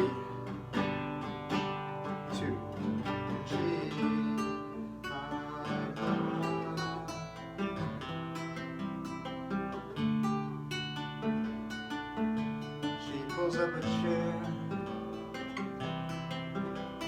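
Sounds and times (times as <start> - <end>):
person singing: 0.0 - 8.5, 12.5 - 15.6
nylon-string guitar: 0.0 - 17.0.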